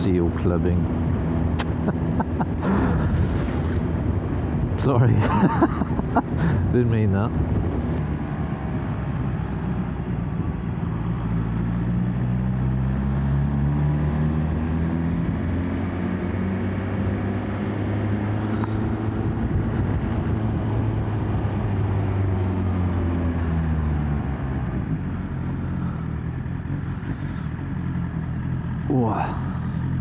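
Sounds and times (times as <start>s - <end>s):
wind and road noise: 0.0s - 30.0s
motorcycle engine running: 24.7s - 30.0s.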